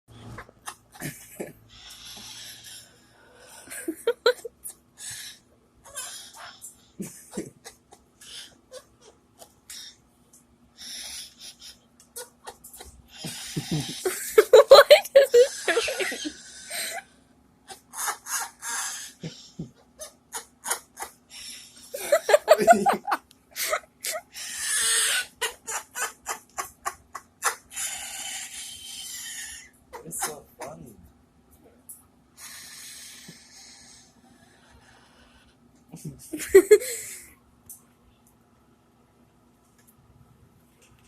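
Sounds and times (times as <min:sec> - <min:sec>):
parrot laughing and squawking: 0:00.2 - 0:02.8, 0:03.6 - 0:09.9, 0:10.8 - 0:17.1, 0:17.7 - 0:30.9.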